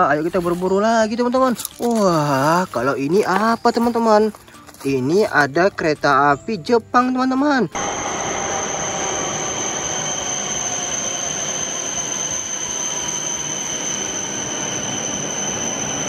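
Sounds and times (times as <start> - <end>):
high-pitched train whine: 7.7 - 16.0
train rushing into station: 7.8 - 16.0.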